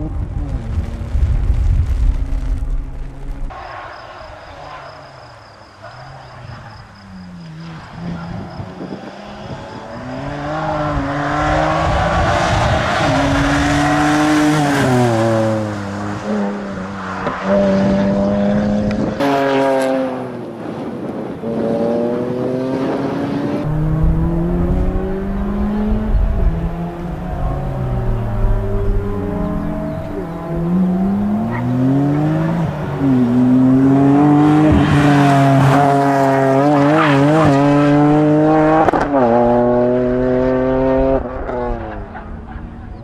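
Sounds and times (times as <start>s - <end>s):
car engine revving hard: 21.6s - 41.9s.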